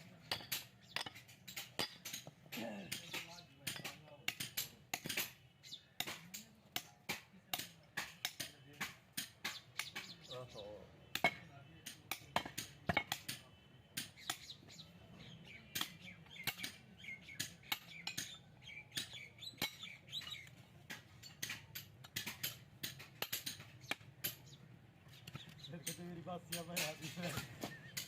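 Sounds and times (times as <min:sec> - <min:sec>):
birds chirping: 0:00.0 - 0:28.0
sharp metallic clinks and taps: 0:00.1 - 0:05.4, 0:15.7 - 0:28.0.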